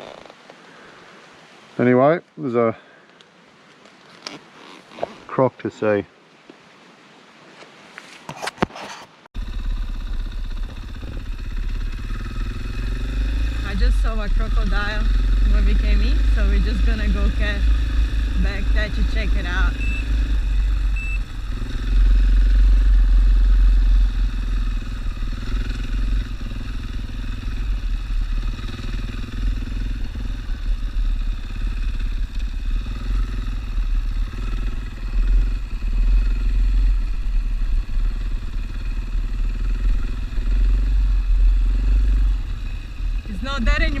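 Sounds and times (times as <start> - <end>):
motorcycle engine running: 9.4 - 44.0.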